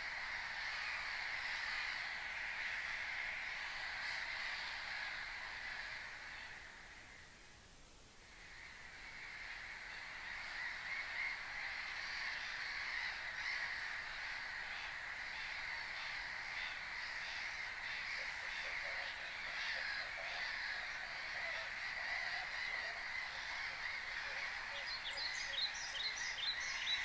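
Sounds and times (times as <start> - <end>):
waterbirds honking: 10.2 - 27.0.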